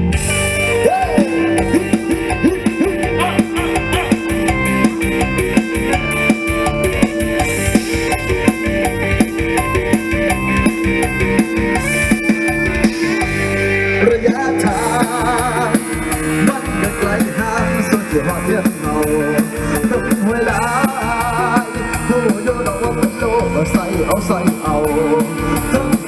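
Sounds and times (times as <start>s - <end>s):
drum kit beat: 0.0s - 26.0s
plucked electric lead: 0.0s - 26.0s.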